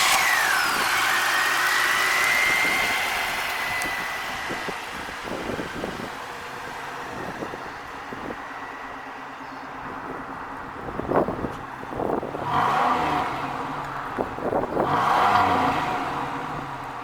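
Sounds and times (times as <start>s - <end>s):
car engine running: 0.0s - 17.0s
supercharger whine: 0.0s - 17.0s.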